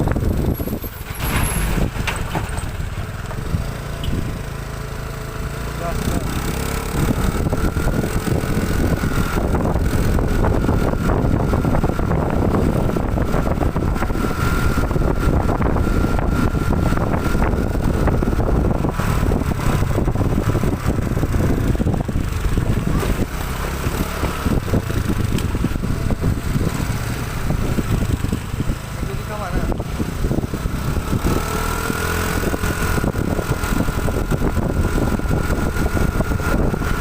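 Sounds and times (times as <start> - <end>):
truck engine running: 0.0 - 37.0.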